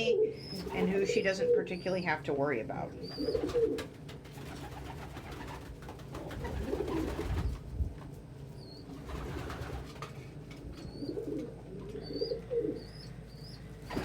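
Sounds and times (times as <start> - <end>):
pigeons cooing: 0.0 - 2.1, 3.0 - 5.6, 6.2 - 7.6, 10.6 - 14.0
young pigeon peeping: 0.0 - 2.2, 3.0 - 3.9, 8.5 - 9.7, 10.6 - 14.0.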